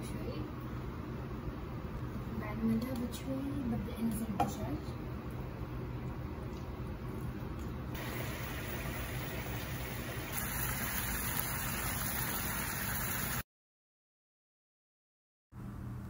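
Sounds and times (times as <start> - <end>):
chicken sizzling in a frying pan: 8.0 - 13.4.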